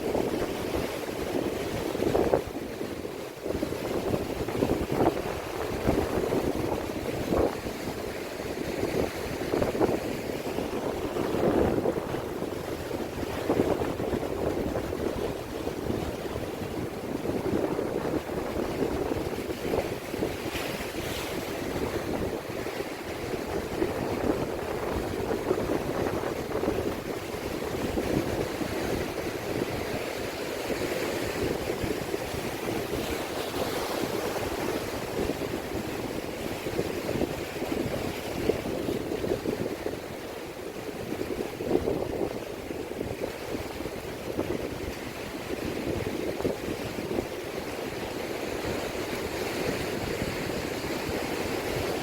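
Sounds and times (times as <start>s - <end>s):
sea waves washing on shore: 0.0s - 52.0s
wind buffeting microphone: 0.0s - 52.0s.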